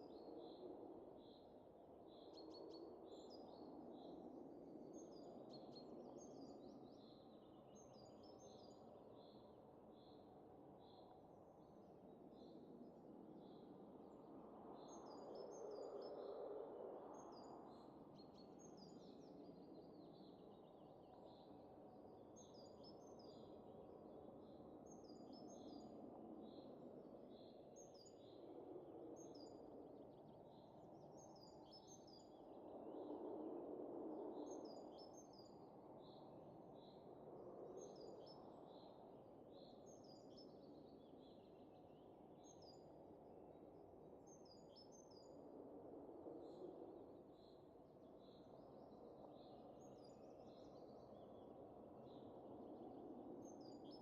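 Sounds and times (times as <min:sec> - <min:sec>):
faint wind gusts: 0:23.4 - 0:54.0.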